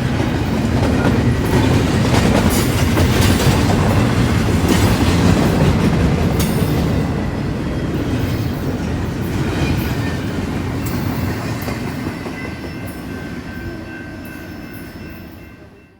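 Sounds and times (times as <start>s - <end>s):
freight train rumbling past: 0.0s - 15.9s.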